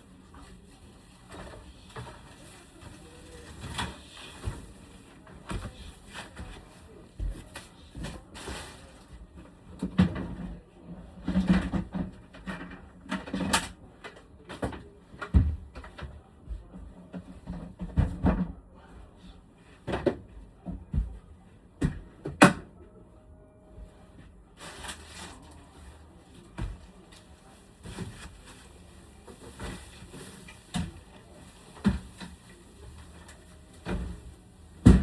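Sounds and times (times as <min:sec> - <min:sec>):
rustling and scraping: 0:24.5 - 0:34.4.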